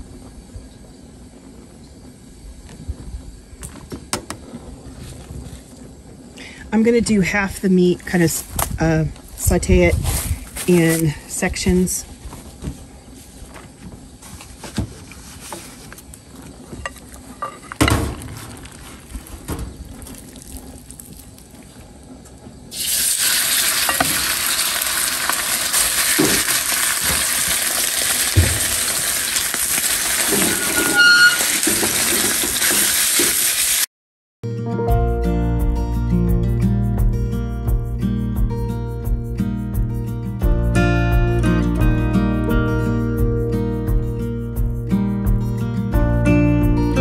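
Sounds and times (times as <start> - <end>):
beef sizzling in hot oil: 22.7 - 33.9.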